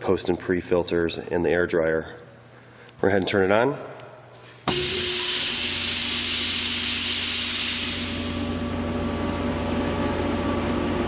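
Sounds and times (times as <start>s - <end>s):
air compressor humming: 4.3s - 11.0s.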